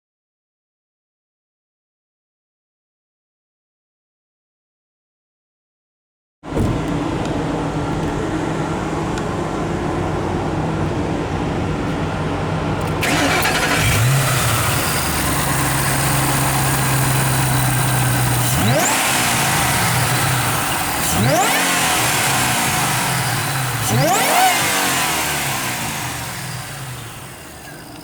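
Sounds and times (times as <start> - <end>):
car engine idling and revving: 6.5 - 28.0.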